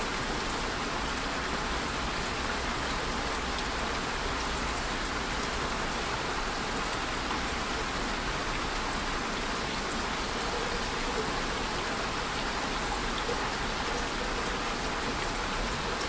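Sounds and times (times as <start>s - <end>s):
rain pattering: 0.0s - 16.0s.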